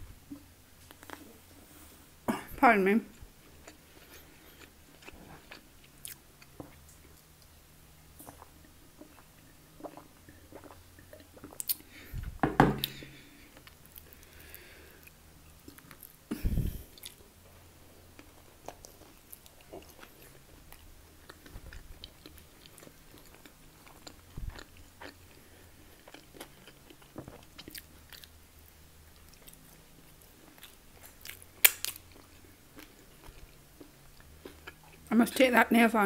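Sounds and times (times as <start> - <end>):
chewing and biting food: 3.4 - 7.5, 8.2 - 14.3, 18.1 - 35.1
heavy thump: 12.3 - 12.9.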